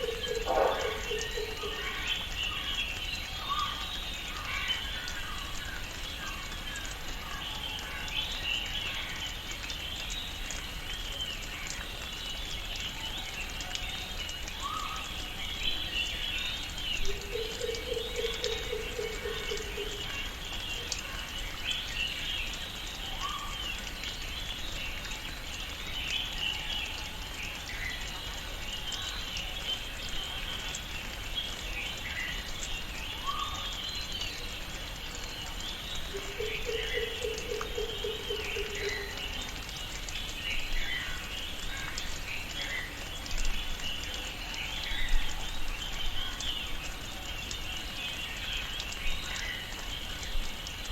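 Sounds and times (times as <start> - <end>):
low pulsing animal call: 0.0 - 1.8
birds chirping: 0.0 - 2.7.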